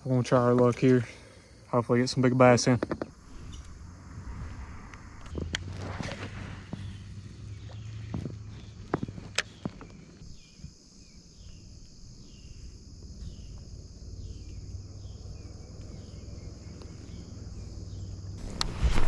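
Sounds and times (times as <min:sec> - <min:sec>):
insects buzzing high-pitched: 0:06.7 - 0:19.0.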